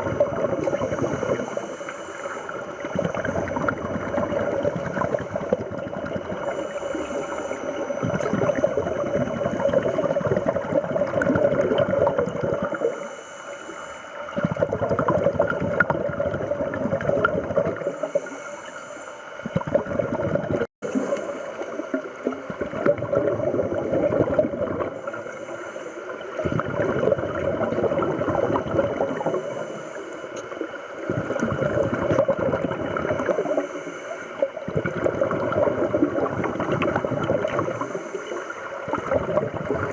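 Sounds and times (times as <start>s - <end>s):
bubbling underwater exhalations: 0.0s - 1.5s, 2.8s - 6.5s, 7.8s - 12.9s, 14.4s - 18.0s, 19.5s - 25.0s, 26.4s - 29.5s, 31.0s - 33.6s, 34.6s - 37.8s, 38.8s - 39.9s
hissing regulator inhalations: 0.6s - 3.8s, 4.4s - 10.2s, 12.6s - 14.4s, 17.8s - 19.7s, 24.9s - 26.6s, 29.0s - 31.0s, 33.3s - 34.6s, 37.5s - 39.0s.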